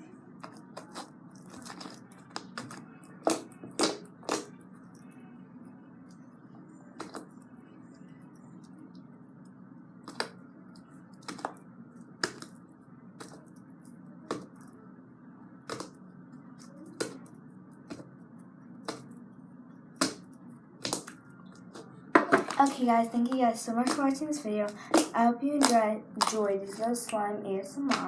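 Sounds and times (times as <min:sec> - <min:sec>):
low steady hum: 0:00.0 - 0:28.0
slime squished by hand: 0:00.4 - 0:05.1, 0:10.0 - 0:12.6, 0:15.6 - 0:16.0, 0:19.9 - 0:27.1.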